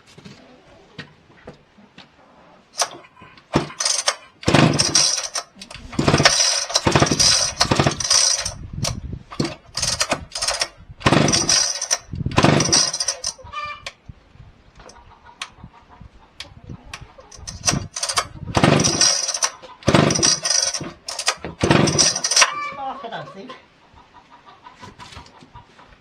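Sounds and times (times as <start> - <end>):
chainsaw sputtering in bursts: 2.8 - 13.4, 17.3 - 22.5.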